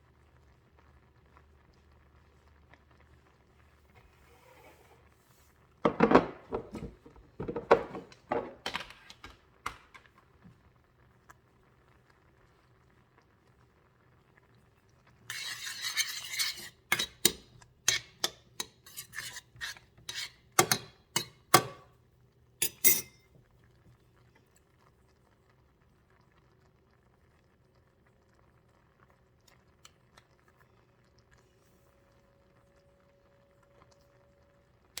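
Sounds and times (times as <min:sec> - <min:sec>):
utensil clinking against bowl: 0:15.3 - 0:21.9, 0:22.6 - 0:23.2
utensils rattling on dishes: 0:22.6 - 0:23.1.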